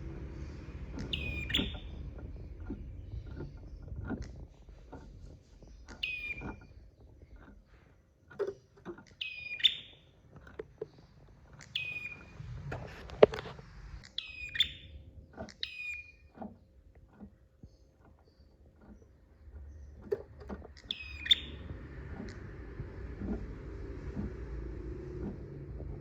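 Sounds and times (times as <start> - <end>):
bird chirping phrases: 0.2 - 4.4, 5.5 - 7.3, 9.1 - 10.1, 11.5 - 12.4, 14.0 - 16.3, 20.8 - 22.4.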